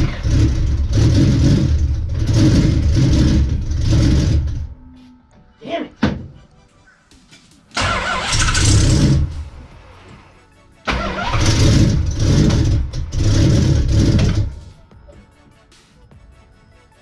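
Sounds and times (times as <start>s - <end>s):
starter cranking engine: 0.0s - 4.8s, 7.7s - 10.0s, 10.9s - 14.7s.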